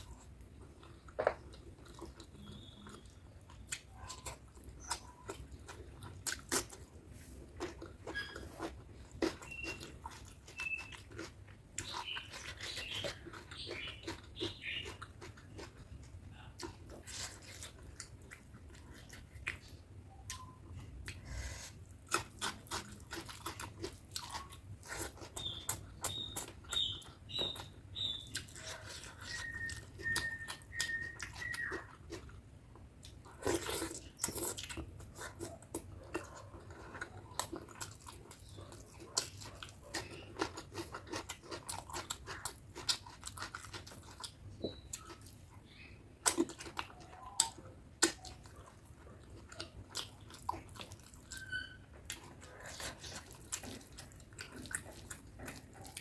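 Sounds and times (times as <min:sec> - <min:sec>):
close chewing and mouth sounds: 0:00.0 - 0:56.0
high squeaks: 0:08.0 - 0:08.6, 0:51.3 - 0:52.0.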